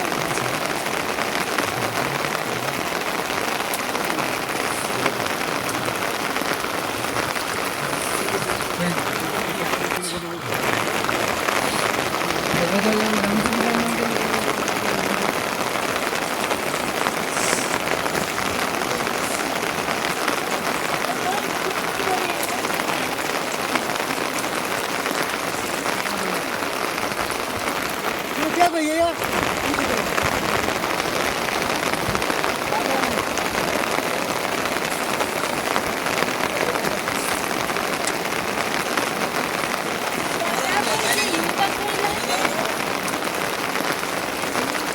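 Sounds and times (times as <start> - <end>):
rain pattering: 0.0 - 44.9.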